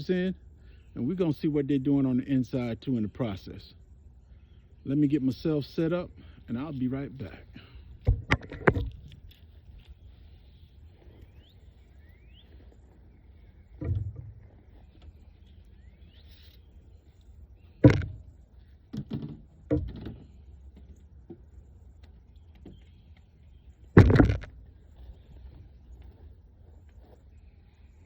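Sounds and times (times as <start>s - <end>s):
thumps and knocks: 8.0s - 9.4s, 13.7s - 14.6s, 17.8s - 21.4s, 24.0s - 24.6s.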